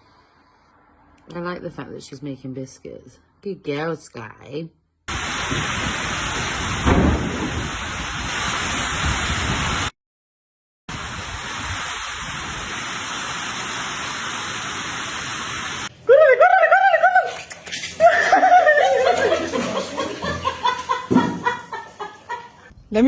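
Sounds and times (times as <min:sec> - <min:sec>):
steady rushing hiss: 0:10.9 - 0:15.9
person laughing rhythmically: 0:18.0 - 0:22.7.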